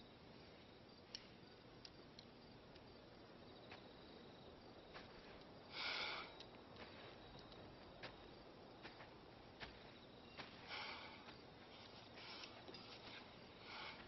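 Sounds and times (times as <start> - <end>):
soft rustle: 6.5 - 14.0.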